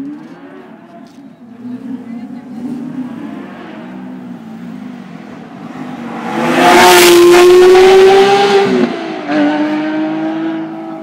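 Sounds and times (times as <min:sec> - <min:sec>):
sports car accelerating past: 0:01.8 - 0:11.0.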